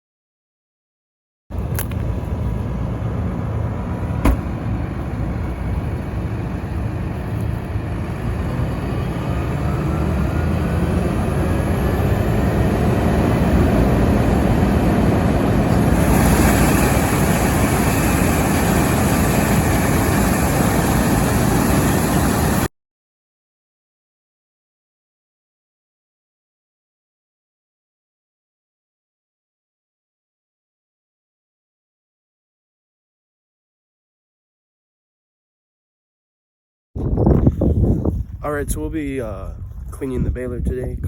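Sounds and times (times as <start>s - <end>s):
heavy vehicle engine rumbling: 1.5s - 22.7s.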